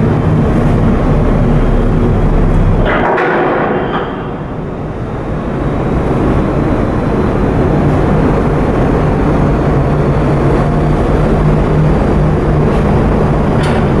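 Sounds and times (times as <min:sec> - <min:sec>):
ship engine rumbling: 0:00.0 - 0:14.0.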